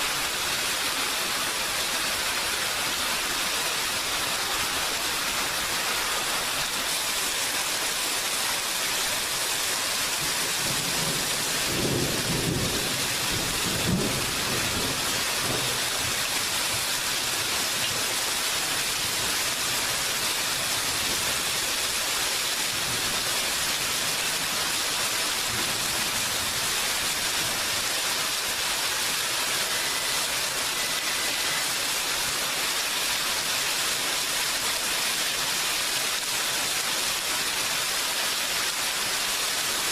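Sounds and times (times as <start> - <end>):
steady rain falling: 0.0 - 39.9
thunder rumbling: 10.6 - 15.9.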